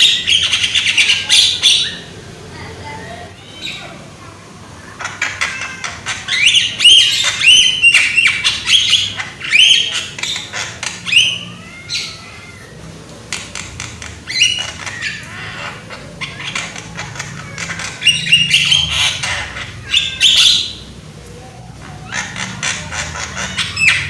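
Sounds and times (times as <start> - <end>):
bird squawking and chattering: 0.0 - 4.1, 4.7 - 24.0.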